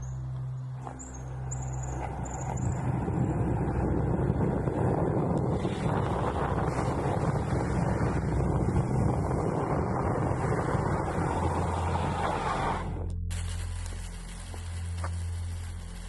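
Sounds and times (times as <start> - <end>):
skateboard wheels rumbling: 1.8 - 15.5
wind buffeting microphone: 1.9 - 13.2.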